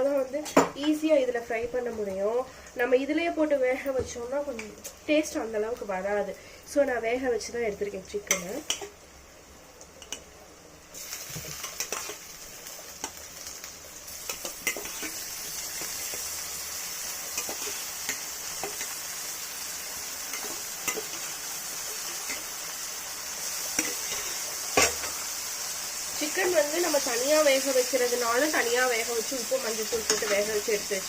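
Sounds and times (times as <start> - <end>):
food sizzling in oil: 0.0 - 31.0
spatula scraping a pan: 14.2 - 16.3, 23.7 - 25.3.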